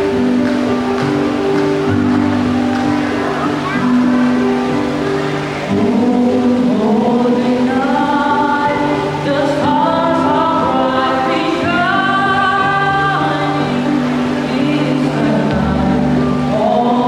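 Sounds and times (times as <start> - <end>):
children's choir singing carol: 5.1 - 17.0.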